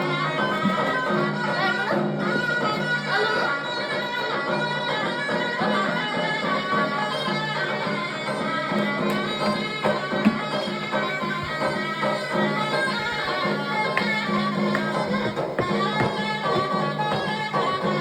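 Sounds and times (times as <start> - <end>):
drum beats: 0.0 - 18.0
reedy folk melody with drone: 0.0 - 18.0.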